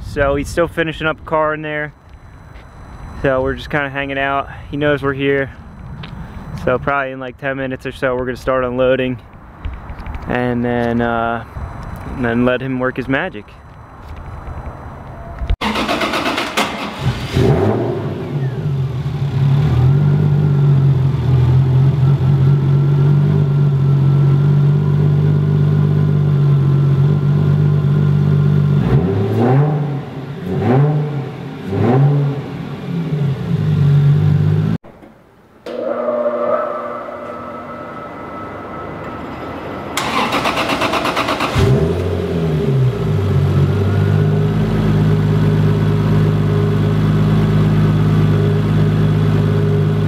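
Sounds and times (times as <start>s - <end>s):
engine revving: 15.6s - 23.8s, 27.0s - 34.8s, 35.7s - 48.4s
car engine idling: 39.8s - 49.8s.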